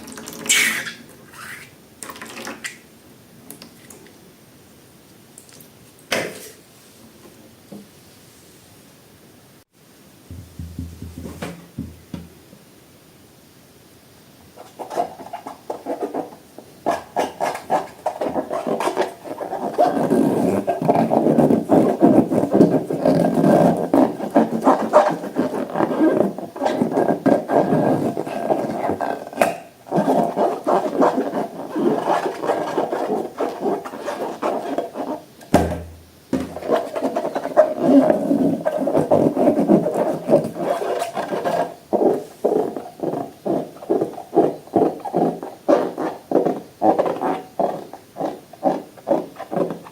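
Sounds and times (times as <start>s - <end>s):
low thump: 10.3s - 12.3s.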